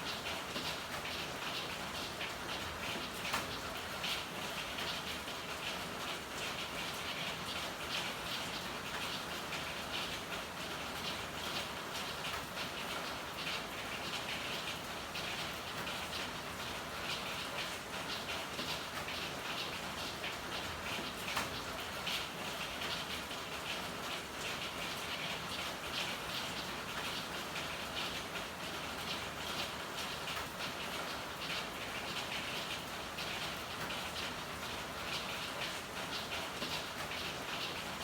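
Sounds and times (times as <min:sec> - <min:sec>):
steady rain: 0:00.0 - 0:38.0.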